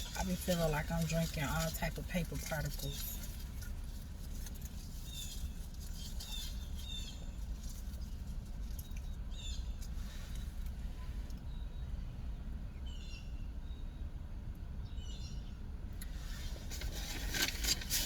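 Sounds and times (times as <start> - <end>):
steady low rumble: 0.0 - 17.9
small birds chirping: 2.4 - 14.1, 14.8 - 15.6.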